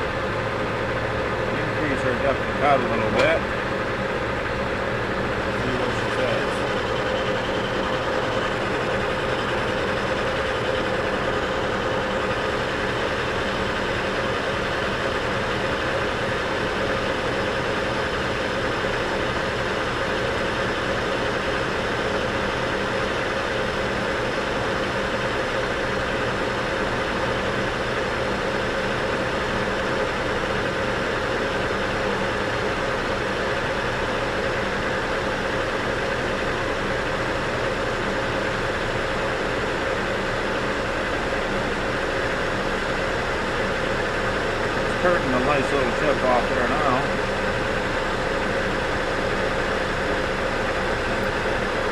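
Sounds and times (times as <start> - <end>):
metal lathe droning: 0.0 - 51.9.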